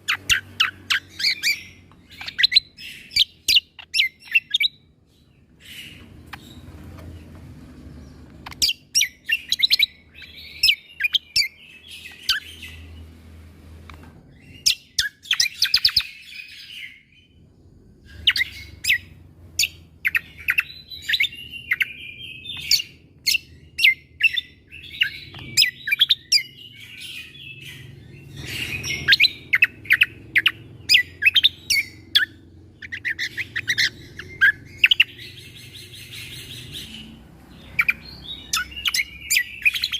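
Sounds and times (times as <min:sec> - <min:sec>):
songbird singing sharp rapid notes: 0:18.1 - 0:39.9.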